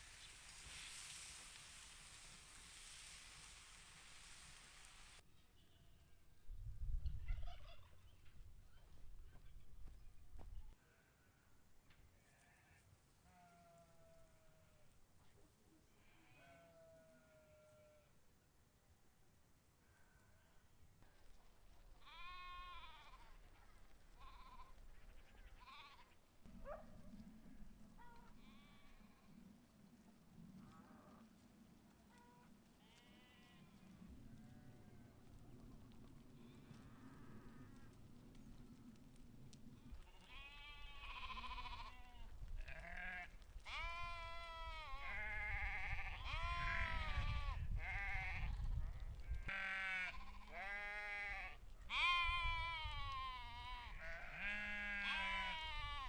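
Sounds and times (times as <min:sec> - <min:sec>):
sheep bleating faintly: 0:15.9 - 0:18.2, 0:49.5 - 0:56.0
sheep bleating: 0:16.0 - 0:18.1, 0:32.2 - 0:33.8, 0:40.1 - 0:48.5, 0:49.5 - 0:56.0.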